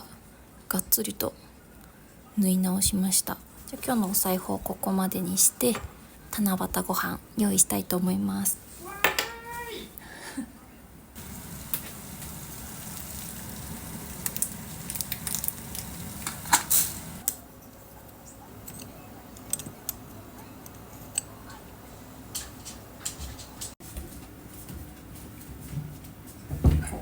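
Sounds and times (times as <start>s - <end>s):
food sizzling: 11.2s - 17.2s
utensils clicking and tapping: 11.2s - 17.4s, 18.6s - 21.6s.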